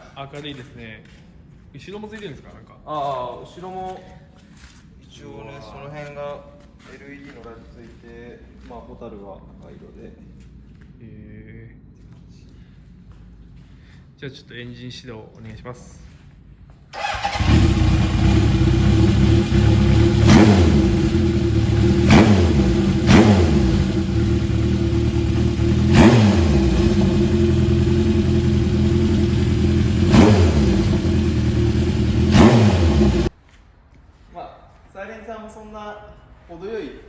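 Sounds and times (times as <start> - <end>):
motorcycle engine revving: 17.0 - 33.3.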